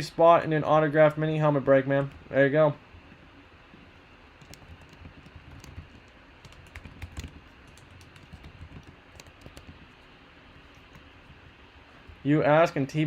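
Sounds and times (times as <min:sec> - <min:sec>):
computer keyboard typing clicks: 0:04.4 - 0:10.0.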